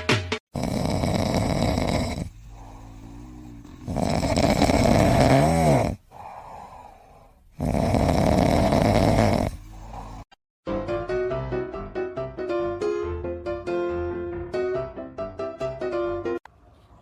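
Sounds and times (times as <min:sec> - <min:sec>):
loud rasping snoring: 0:00.5 - 0:10.4
quiet breaths: 0:01.5 - 0:04.0, 0:06.0 - 0:07.6, 0:08.7 - 0:10.4.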